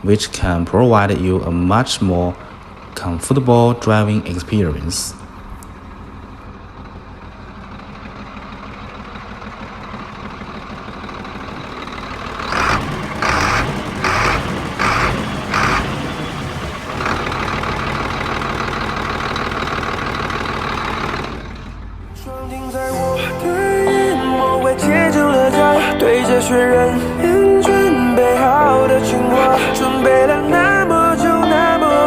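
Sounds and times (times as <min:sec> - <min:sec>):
diesel truck engine running: 0:00.0 - 0:32.0
short loud bursts: 0:11.3 - 0:23.9.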